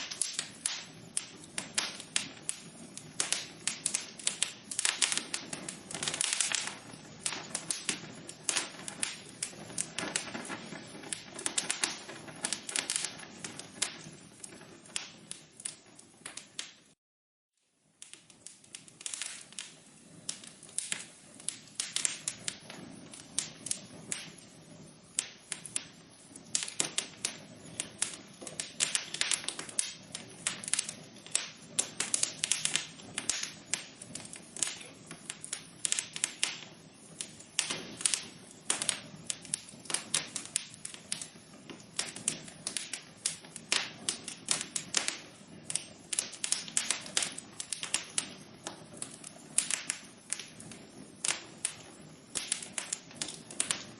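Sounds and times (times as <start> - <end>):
wood fire crackling and popping: 0.0 - 17.0, 17.7 - 53.9
soft steady hiss: 17.6 - 53.9.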